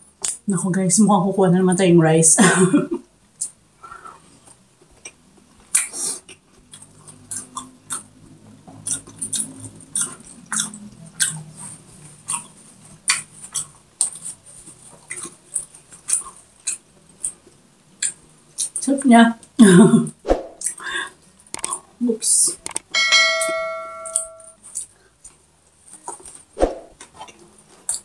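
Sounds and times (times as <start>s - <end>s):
chewing food: 4.2s - 18.8s, 24.6s - 28.0s
wet mouth clicks and smacks: 8.8s - 11.4s, 21.5s - 21.8s.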